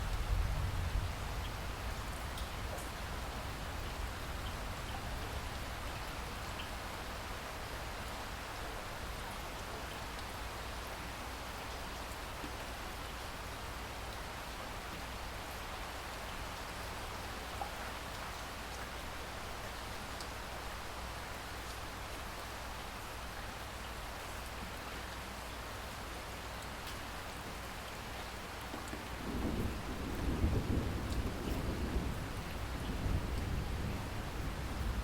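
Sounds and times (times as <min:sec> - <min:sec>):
steady rain hiss: 0:00.0 - 0:35.0
raindrop ticks: 0:28.6 - 0:30.2, 0:31.0 - 0:31.7, 0:32.4 - 0:33.6.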